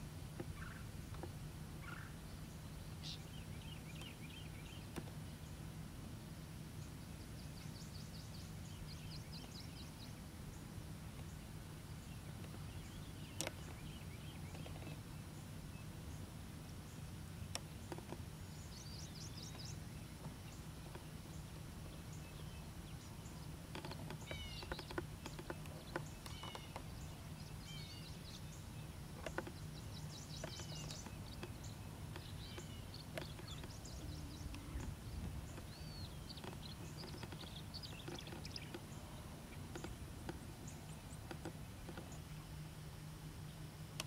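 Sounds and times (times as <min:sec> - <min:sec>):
songbirds calling and singing: 0:00.0 - 0:44.0
steady low rumble: 0:24.4 - 0:44.0.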